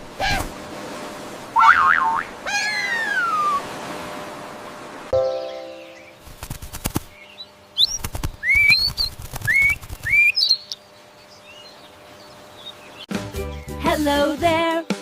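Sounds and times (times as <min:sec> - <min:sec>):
bird whistled calls: 0:01.6 - 0:03.7, 0:07.2 - 0:10.8
rustling: 0:06.2 - 0:07.1, 0:07.8 - 0:10.3
sharp clicks: 0:06.3 - 0:07.1, 0:07.8 - 0:10.3.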